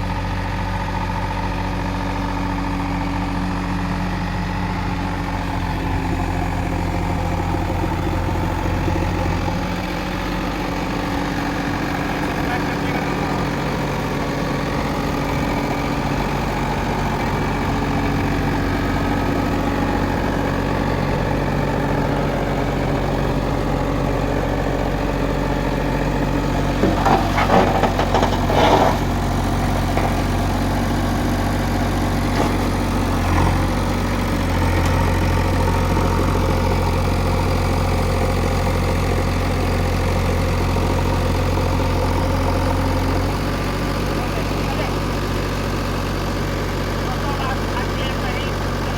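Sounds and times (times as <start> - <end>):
diesel engine idling: 0.0 - 48.9
clattering knocks: 26.7 - 29.1.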